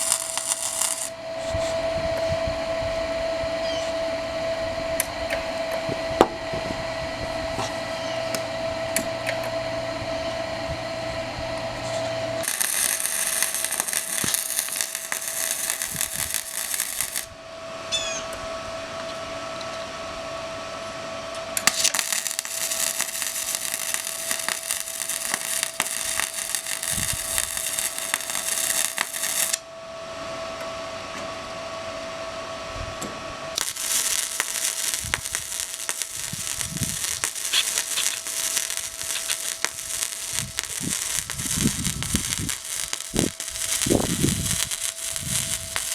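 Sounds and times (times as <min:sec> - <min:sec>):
welding arc crackling and hissing: 0:00.0 - 0:01.8, 0:11.8 - 0:17.3, 0:21.6 - 0:29.6, 0:33.6 - 0:45.9
steady machine hum: 0:00.0 - 0:45.9.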